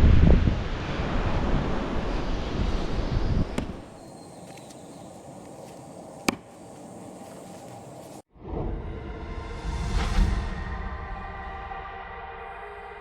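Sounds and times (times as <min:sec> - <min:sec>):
wind buffeting microphone: 0:00.0 - 0:08.2
faint steady hiss: 0:03.6 - 0:08.3.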